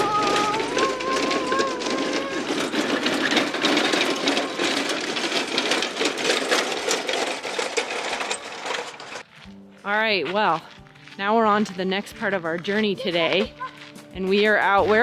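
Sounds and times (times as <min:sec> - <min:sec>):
rapid clatter of clicks: 0:00.0 - 0:09.2.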